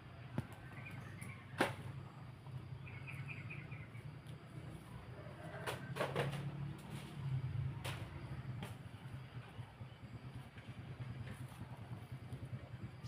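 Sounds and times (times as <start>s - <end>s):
small bird chirping and trilling: 2.8s - 4.0s.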